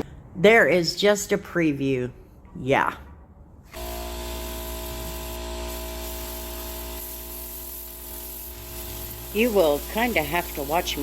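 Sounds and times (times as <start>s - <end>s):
air tool blowing: 3.7s - 11.0s.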